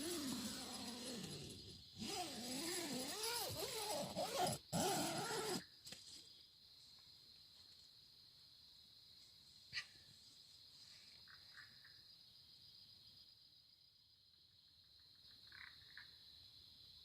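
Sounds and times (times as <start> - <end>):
high insect chirring: 0.0 - 6.5.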